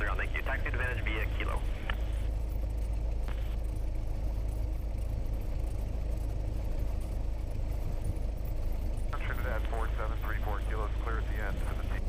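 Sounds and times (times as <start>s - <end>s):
propeller plane engine drone: 0.0s - 12.0s.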